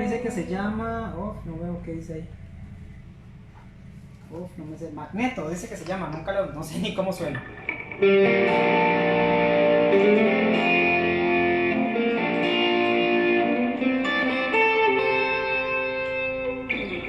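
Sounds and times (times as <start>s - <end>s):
electric guitar ringing chords: 7.3s - 17.0s.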